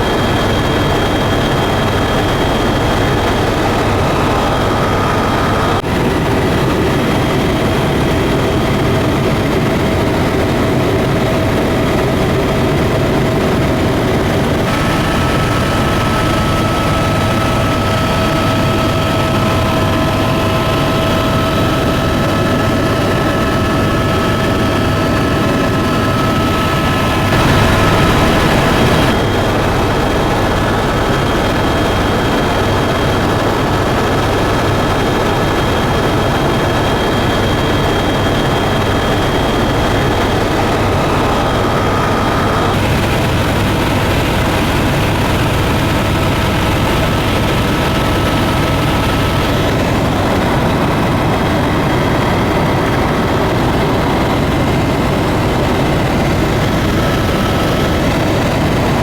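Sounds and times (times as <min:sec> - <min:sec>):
airplane engines droning: 0:00.0 - 0:59.0
steady tones: 0:14.6 - 0:29.2.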